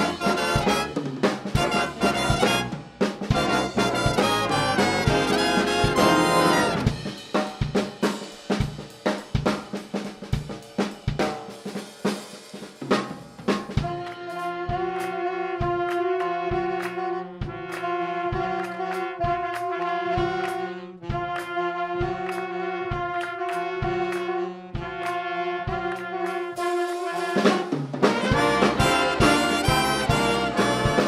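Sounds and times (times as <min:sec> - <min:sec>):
brass sustained chords: 0:00.0 - 0:01.0, 0:01.6 - 0:07.0, 0:28.2 - 0:31.0
rapid drum hits: 0:00.0 - 0:13.9, 0:27.5 - 0:31.0
steady drum beat: 0:00.0 - 0:16.8, 0:17.4 - 0:24.2, 0:24.8 - 0:31.0.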